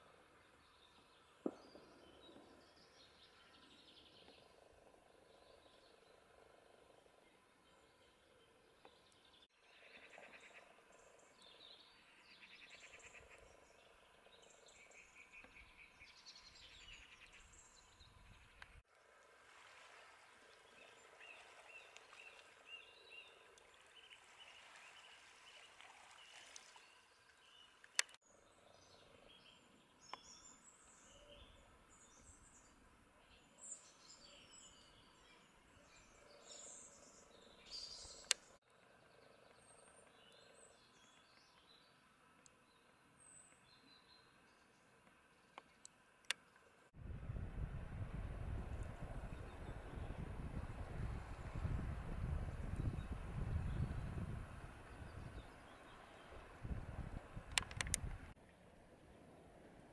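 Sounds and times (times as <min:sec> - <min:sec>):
sharp click: 0:57.5 - 0:58.1.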